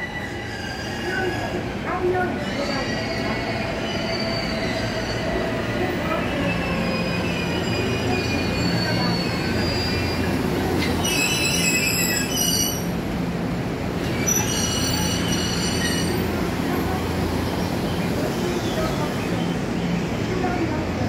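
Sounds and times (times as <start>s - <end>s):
train wheels squealing: 0.0s - 1.7s, 2.4s - 13.0s, 14.0s - 16.4s.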